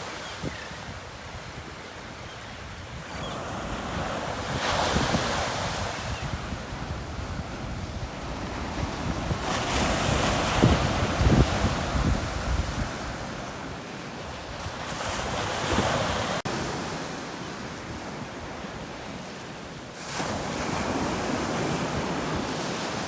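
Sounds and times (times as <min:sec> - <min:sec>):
waves crashing on beach: 0:00.0 - 0:23.0
wind buffeting microphone: 0:00.4 - 0:16.2.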